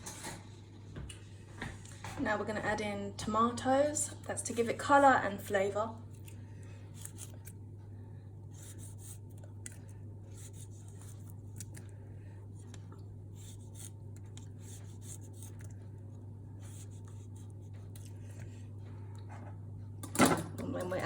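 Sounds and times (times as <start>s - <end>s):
low electrical hum: 0.0s - 21.0s
scraping and rubbing tomatoes: 3.8s - 19.1s.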